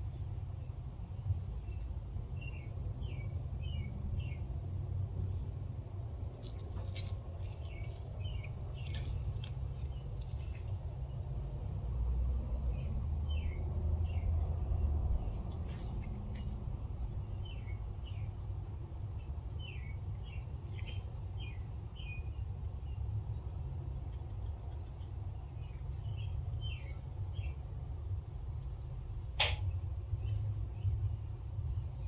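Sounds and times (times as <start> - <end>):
steady low rumble: 0.0 - 32.0
small birds chirping: 0.2 - 32.0
sharp click: 29.4 - 29.7.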